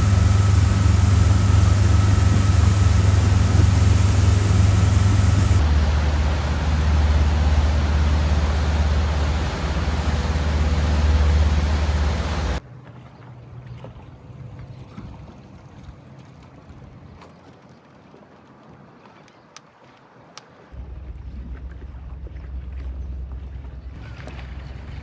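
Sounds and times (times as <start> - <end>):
motorboat engine droning: 0.0 - 12.6
rushing water: 0.0 - 12.6
wind: 0.0 - 25.0.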